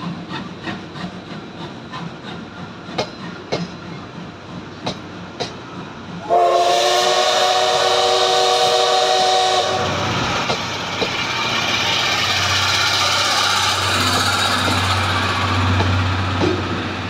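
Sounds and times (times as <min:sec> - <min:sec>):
locomotive hum and rumble: 0:00.0 - 0:17.0
train coaches rolling past: 0:00.0 - 0:17.0
train whistle chord: 0:06.2 - 0:10.0.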